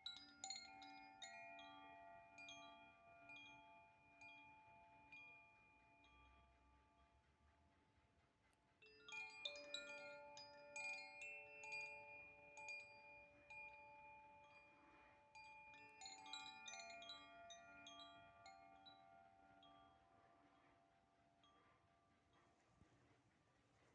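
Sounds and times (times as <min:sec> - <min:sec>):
wind chimes ringing: 0:00.0 - 0:06.4, 0:08.8 - 0:20.2.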